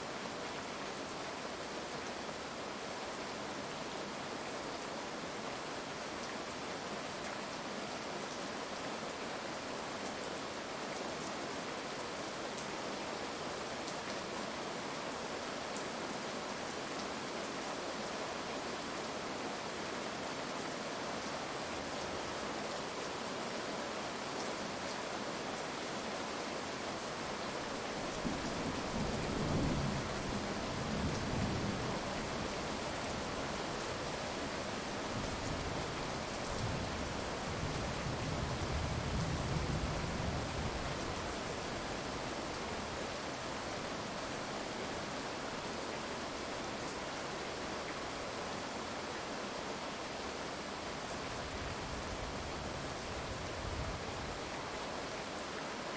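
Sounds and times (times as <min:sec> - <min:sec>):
heavy rain falling: 0:15.4 - 0:55.9.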